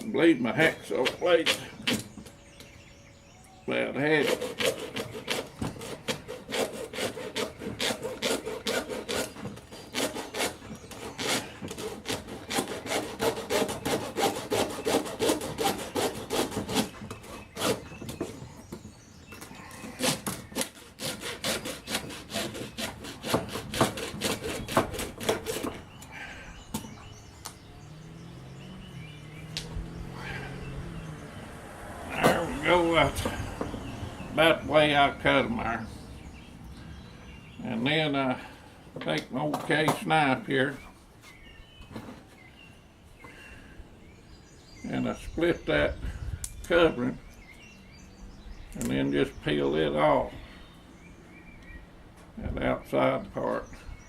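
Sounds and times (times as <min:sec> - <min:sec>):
hacksaw cutting bone: 0:00.9 - 0:02.2, 0:04.1 - 0:18.4, 0:19.8 - 0:26.0.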